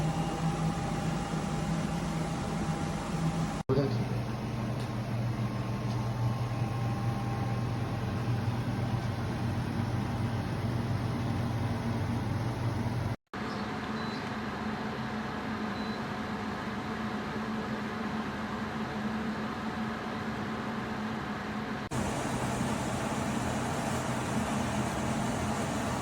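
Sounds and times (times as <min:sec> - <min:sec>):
air conditioner humming: 0:00.0 - 0:13.2, 0:21.9 - 0:26.0.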